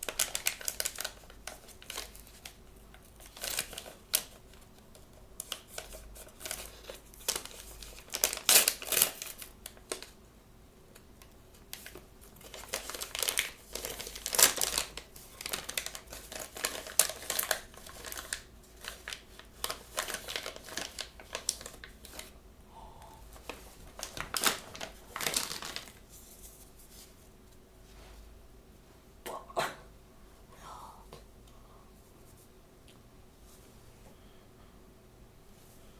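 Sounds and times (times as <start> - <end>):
plastic packaging crinkling: 0.0 - 4.5, 5.4 - 10.2, 11.7 - 22.4, 23.4 - 26.9.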